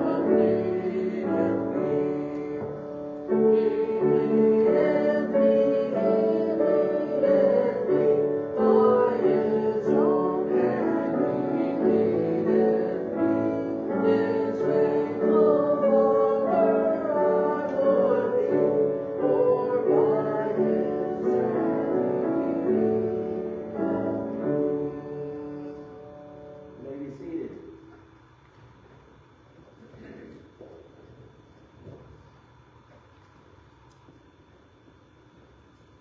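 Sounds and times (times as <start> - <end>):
piano chords: 0.0 - 27.4
person singing: 3.4 - 26.0.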